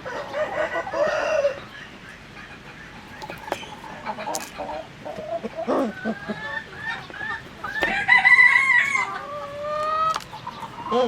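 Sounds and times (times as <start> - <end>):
chickens clucking: 0.0 - 11.0
loud pitched chicken call: 2.9 - 11.0.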